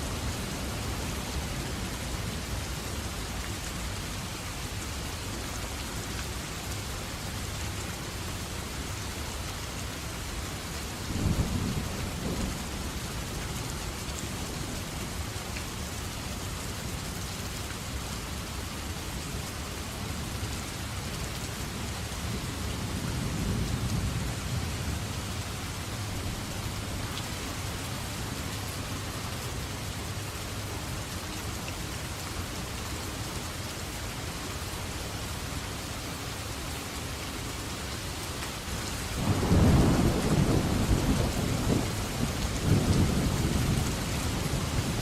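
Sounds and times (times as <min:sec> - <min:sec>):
steady rain: 0:00.0 - 0:45.0
thunder rumbling: 0:39.2 - 0:45.0.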